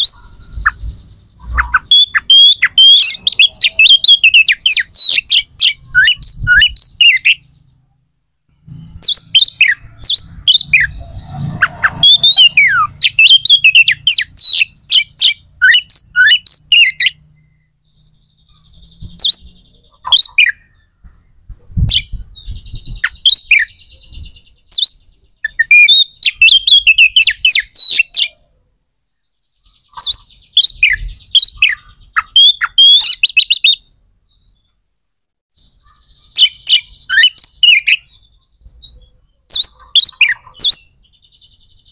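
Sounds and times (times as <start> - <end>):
bird chirping high notes: 0.0 - 7.8, 8.5 - 21.0.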